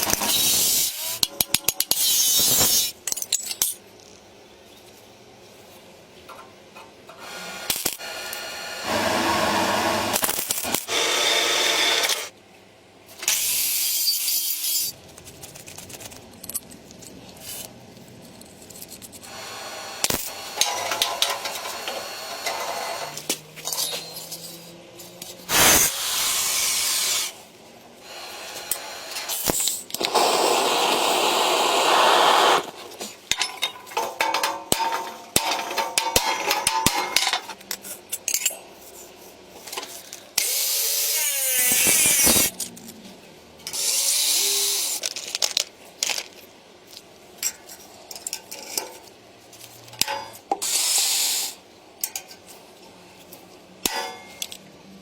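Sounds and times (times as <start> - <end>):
tool scraping or cutting: 29.4 - 33.1.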